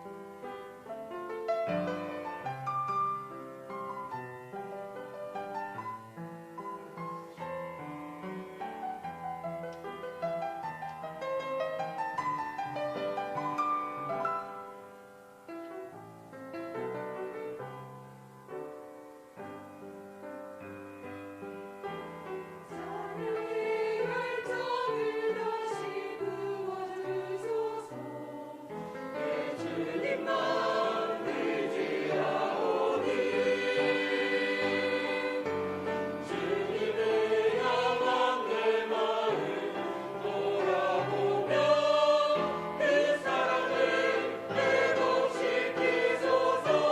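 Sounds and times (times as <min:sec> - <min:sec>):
piano accompaniment: 0:00.0 - 0:46.9
choir singing praise song: 0:22.7 - 0:46.9.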